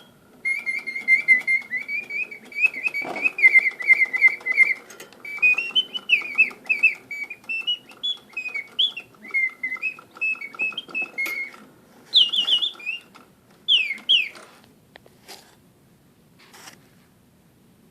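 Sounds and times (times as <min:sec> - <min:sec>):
mechanical bird whistling trills: 0:00.0 - 0:14.4
clockwork mechanism clicking: 0:00.0 - 0:14.5.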